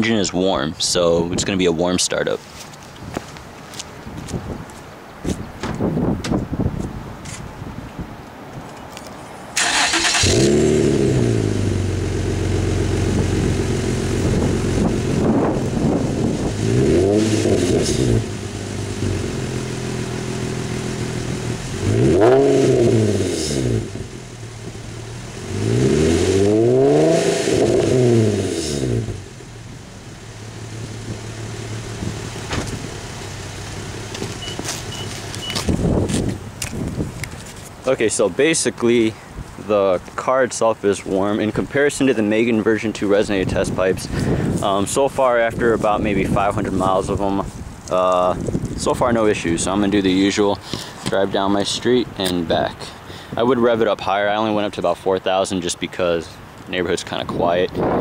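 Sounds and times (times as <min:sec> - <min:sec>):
engine cranking: 0:09.6 - 0:10.8
car engine idling and revving: 0:09.6 - 0:36.8.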